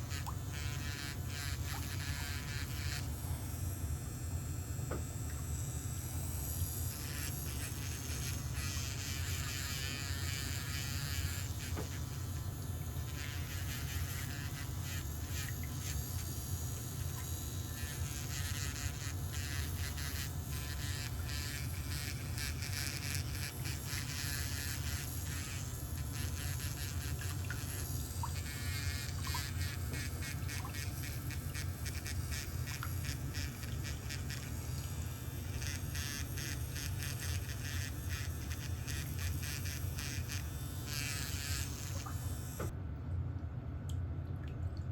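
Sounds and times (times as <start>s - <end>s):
electric nail drill buzzing: 0.0s - 42.7s
scratchy scraping on toenail: 6.9s - 42.7s.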